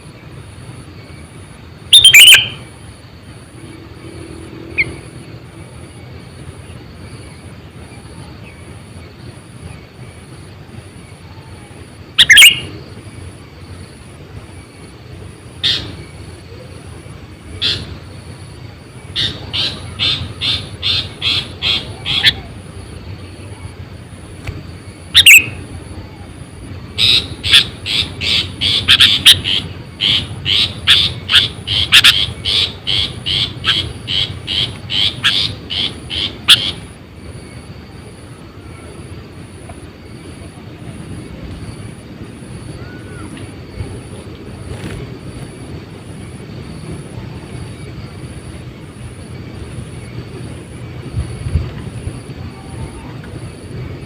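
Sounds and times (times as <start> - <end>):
bulbul calling: 1.9 - 2.7, 12.2 - 12.8, 15.6 - 16.6, 17.6 - 18.4, 19.1 - 23.8, 25.0 - 26.3, 26.9 - 36.9.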